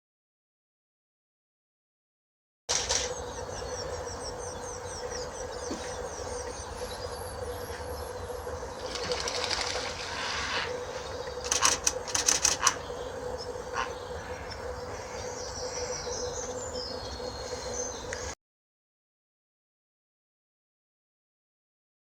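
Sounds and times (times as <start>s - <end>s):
faint steady hum: 2.7s - 18.4s
sharp chattering bird calls: 2.7s - 18.4s
small birds singing: 2.7s - 18.4s.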